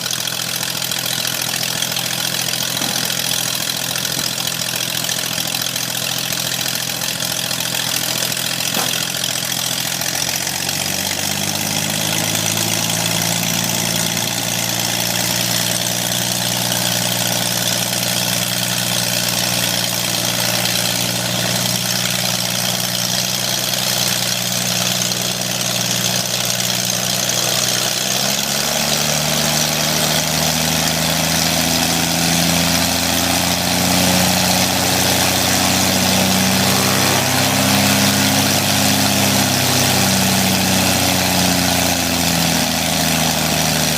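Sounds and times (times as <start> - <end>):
airplane engine running: 10.4 - 25.5, 27.2 - 43.9.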